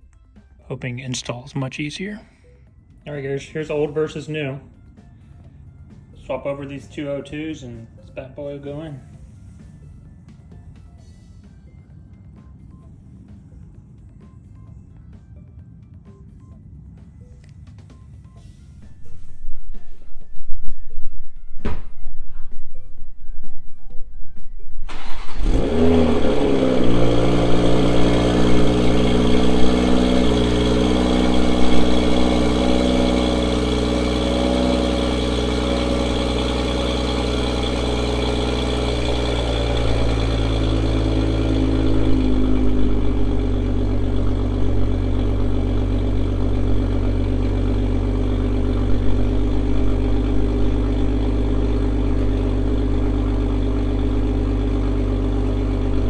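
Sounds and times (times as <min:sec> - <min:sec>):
car engine starting and idling: 0:00.0 - 0:05.5, 0:18.3 - 0:56.0.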